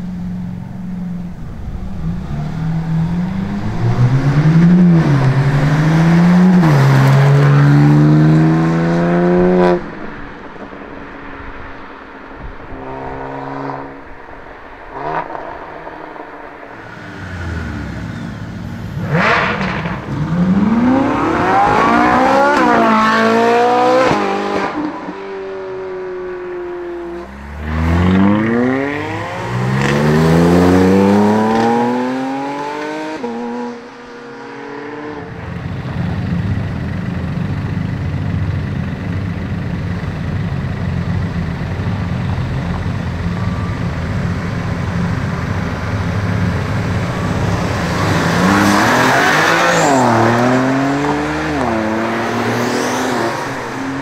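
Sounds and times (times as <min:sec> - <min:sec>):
low engine drone: 0:00.0 - 0:22.4, 0:34.9 - 0:54.0
sports car engines accelerating: 0:00.0 - 0:54.0.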